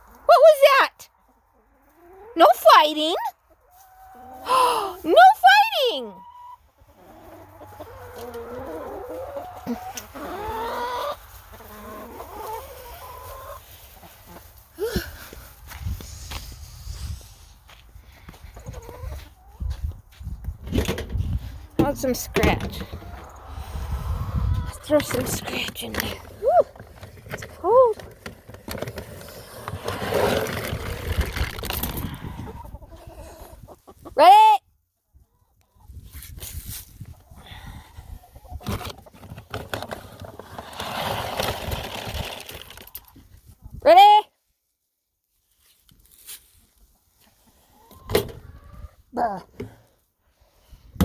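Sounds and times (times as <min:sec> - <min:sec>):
hens clucking: 0:00.6 - 0:14.7, 0:18.4 - 0:20.1, 0:21.7 - 0:28.1, 0:31.9 - 0:34.4, 0:37.1 - 0:40.3, 0:47.2 - 0:49.1.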